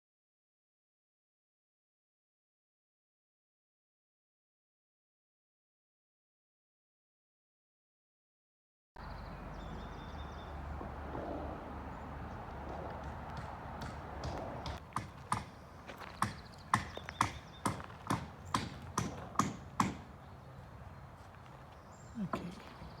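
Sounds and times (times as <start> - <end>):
footsteps walking: 10.5 - 19.4, 21.1 - 23.0.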